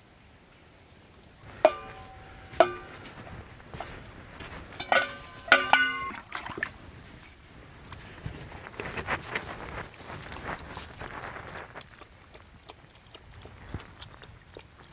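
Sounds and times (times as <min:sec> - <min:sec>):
metal objects clinking: 0:01.7 - 0:03.1, 0:04.8 - 0:06.3.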